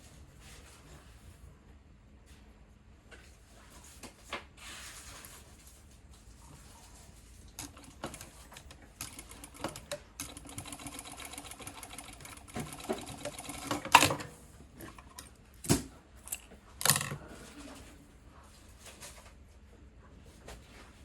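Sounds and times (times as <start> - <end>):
sewing machine stitching: 7.6 - 14.1.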